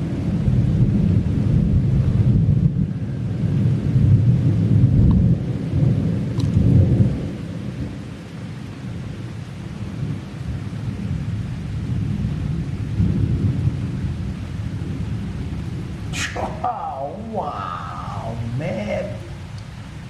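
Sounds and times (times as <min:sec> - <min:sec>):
steady rain: 0:00.0 - 0:20.0
thunder rumbling: 0:11.8 - 0:20.0.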